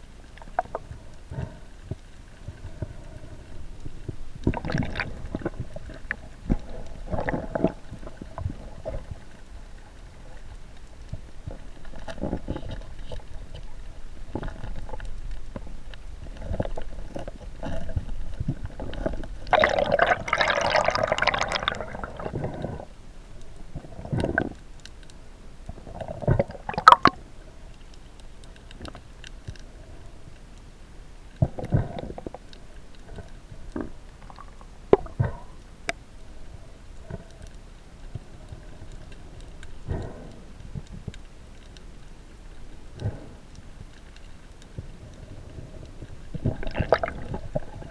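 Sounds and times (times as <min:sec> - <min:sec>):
water sloshing and gurgling: 0:00.0 - 0:30.2, 0:31.3 - 0:47.9
water bubbling: 0:03.6 - 0:23.0, 0:25.9 - 0:27.3, 0:46.2 - 0:47.9.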